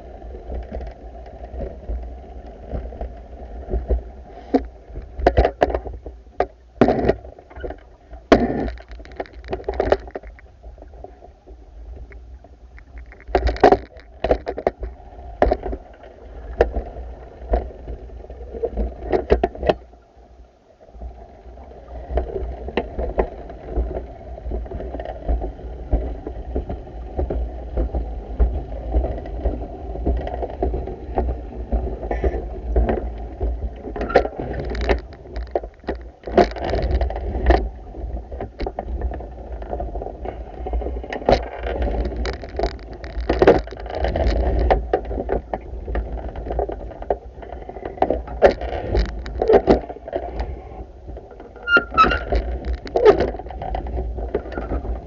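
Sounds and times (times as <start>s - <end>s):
knocks and splashes: 24.6s - 37.7s, 41.2s - 47.2s.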